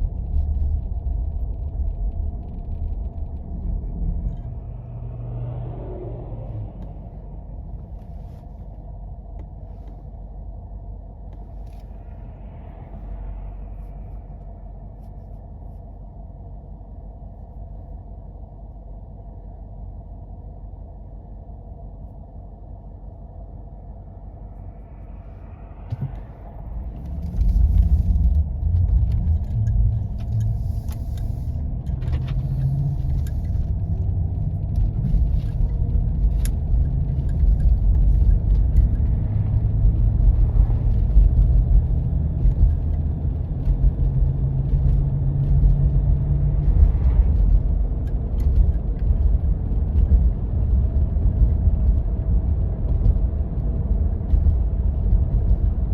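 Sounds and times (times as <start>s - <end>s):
vehicle driving on snow: 0.0s - 55.9s.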